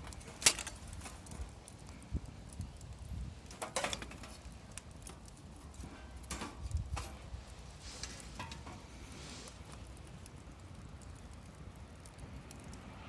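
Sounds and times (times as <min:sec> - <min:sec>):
sharp pops from fire: 0:00.0 - 0:13.0
wood fire crackling: 0:00.0 - 0:13.0.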